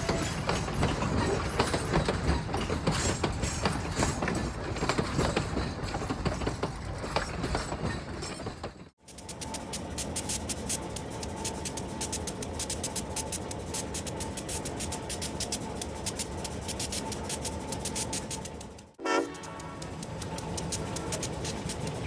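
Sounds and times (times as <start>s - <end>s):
train clicking on rails: 0.0s - 22.0s.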